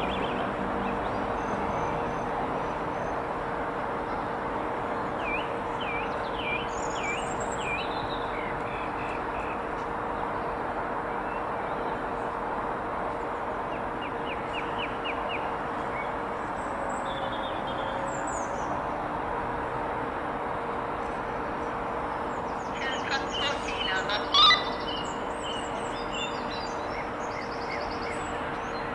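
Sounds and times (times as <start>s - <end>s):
small birds chirping: 22.4s - 28.9s.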